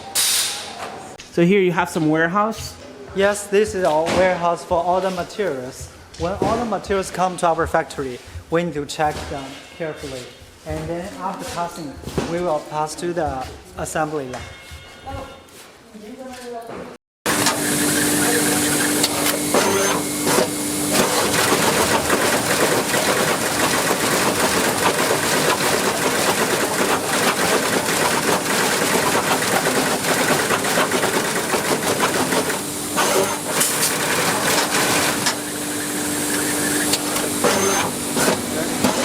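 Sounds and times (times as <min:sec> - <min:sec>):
machinery hiss and clatter: 0:00.1 - 0:00.7, 0:17.3 - 0:39.0.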